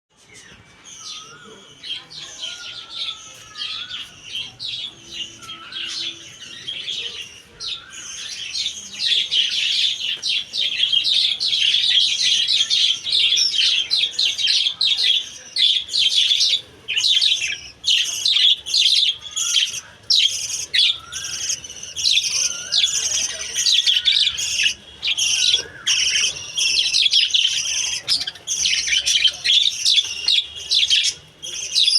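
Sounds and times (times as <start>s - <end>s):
budgerigars chattering: 0.4s - 31.9s.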